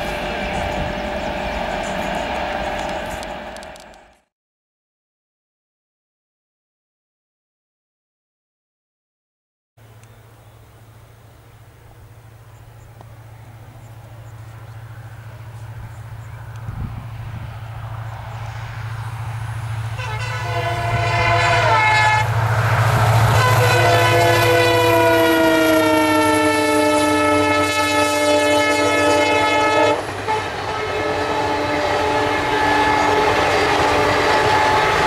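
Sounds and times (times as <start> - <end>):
train horn: 0.0 - 4.1, 19.7 - 35.0
train coaches rumbling past: 0.0 - 4.3, 9.8 - 35.0.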